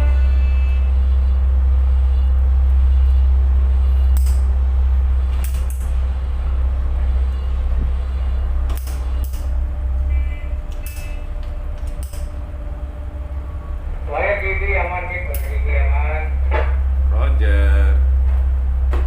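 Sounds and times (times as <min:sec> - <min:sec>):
diesel engine rumble: 0:00.0 - 0:19.0.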